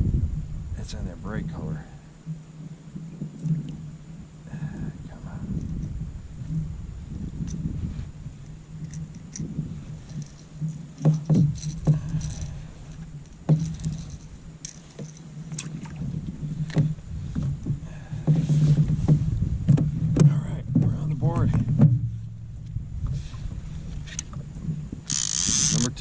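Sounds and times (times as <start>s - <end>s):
low steady hum: 0.0s - 26.0s
knocks against plastic kayak hull: 16.7s - 22.1s.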